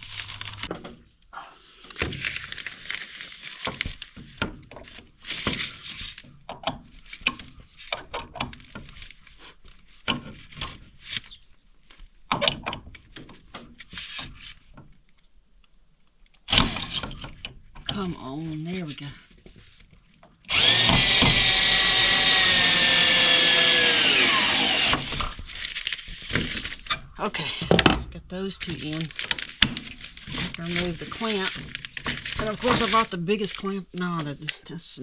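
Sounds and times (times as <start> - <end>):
scraping and rustling: 0.0 - 1.2, 24.8 - 27.8.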